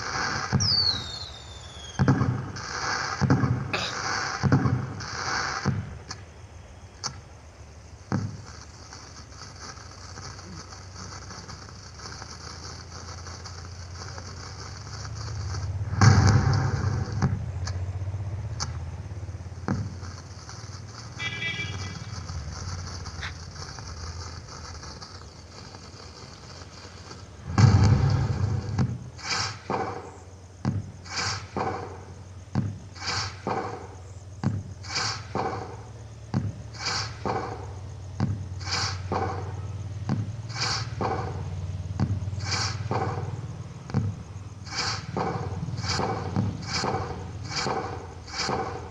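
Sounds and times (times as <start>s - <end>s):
steady speaker hiss: 0.0s - 48.9s
quick firecracker cracks: 8.1s - 17.8s, 18.5s - 30.2s, 31.0s - 32.1s, 32.9s - 34.0s, 34.8s - 39.6s, 40.4s - 48.9s
firecracker bang with rumble: 14.8s - 17.5s, 27.4s - 48.9s.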